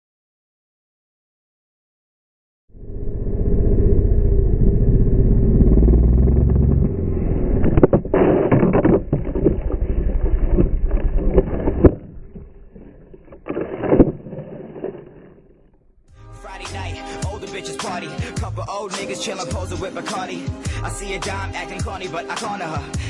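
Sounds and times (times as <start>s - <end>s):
dirt bike engine running: 3.2s - 13.0s.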